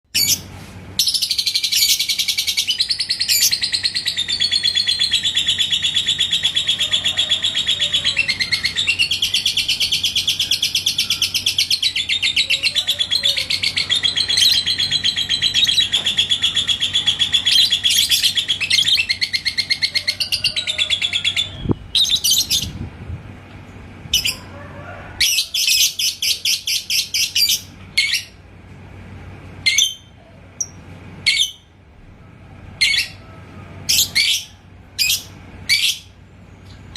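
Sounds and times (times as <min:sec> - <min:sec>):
lovebird chattering trill: 0:00.1 - 0:22.8, 0:24.2 - 0:24.4, 0:25.2 - 0:28.4, 0:33.9 - 0:36.1.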